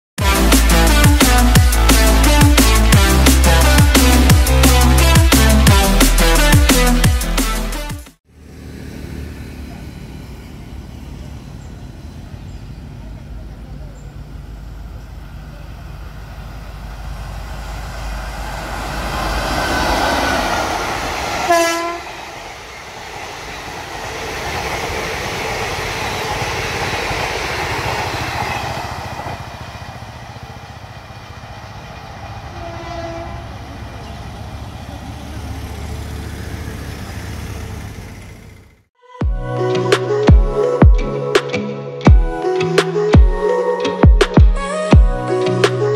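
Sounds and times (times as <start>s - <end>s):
train rushing past: 8.3s - 38.9s
train horn blast: 21.4s - 22.4s, 32.4s - 33.7s.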